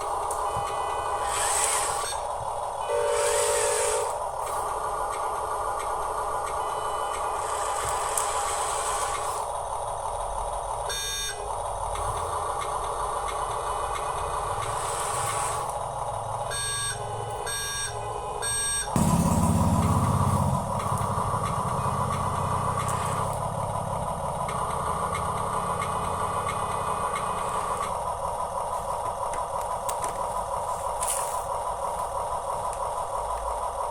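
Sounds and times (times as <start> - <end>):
electric gear motors whining: 0.0 - 33.2
low engine-like rumble: 0.0 - 33.9
short beeps: 16.5 - 18.9.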